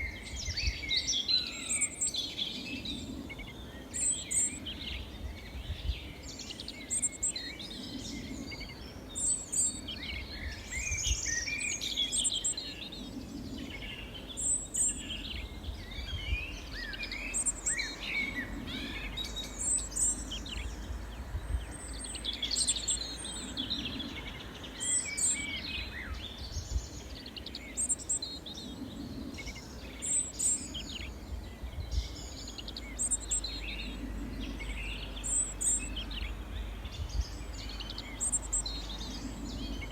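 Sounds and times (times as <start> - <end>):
low background rumble: 0.0 - 39.9
songbirds chirping and singing: 0.0 - 39.9.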